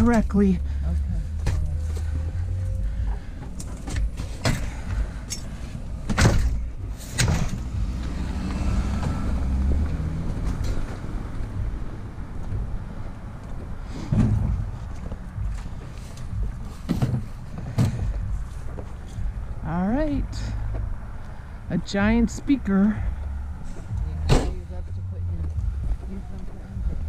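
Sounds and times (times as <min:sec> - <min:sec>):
vehicle engine rumbling: 0:00.0 - 0:27.0
sharp knocks and clanks: 0:03.4 - 0:08.0.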